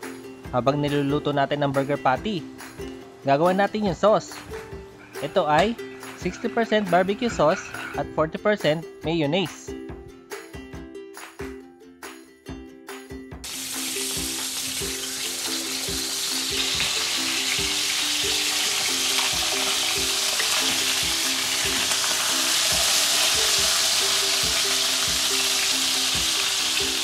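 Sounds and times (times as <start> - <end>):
soft plucked background music: 0.0 - 27.0
patties sizzling in a pan: 13.4 - 27.0.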